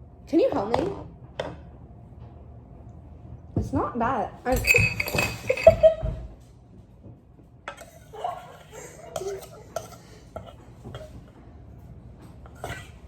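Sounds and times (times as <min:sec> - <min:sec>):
dishes and utensils clinking: 0:04.5 - 0:06.2, 0:07.7 - 0:11.4, 0:12.2 - 0:13.0.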